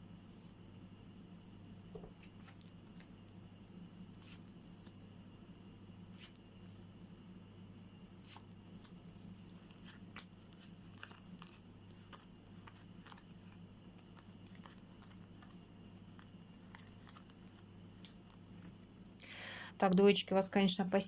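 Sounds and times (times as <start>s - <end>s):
low electrical hum: 0.0s - 21.0s
playing cards clicking and sliding: 1.9s - 3.2s, 4.1s - 5.0s, 8.2s - 18.9s.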